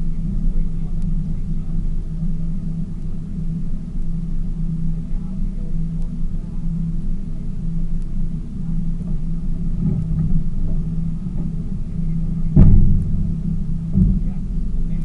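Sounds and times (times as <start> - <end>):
boat engine humming: 0.0 - 15.0
loud thump: 12.5 - 14.5.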